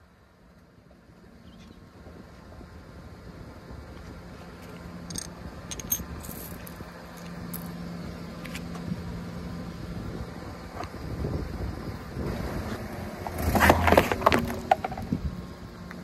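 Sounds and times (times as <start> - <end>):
ceramic fragments clinking: 5.1 - 6.8.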